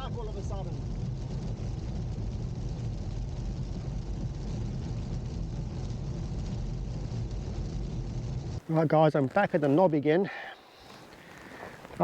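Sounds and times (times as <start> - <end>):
car engine and road noise: 0.0 - 8.7.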